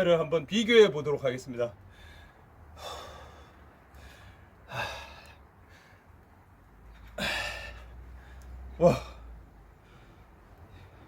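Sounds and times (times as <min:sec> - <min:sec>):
man breathing hard: 0:01.8 - 0:06.2, 0:07.0 - 0:11.0.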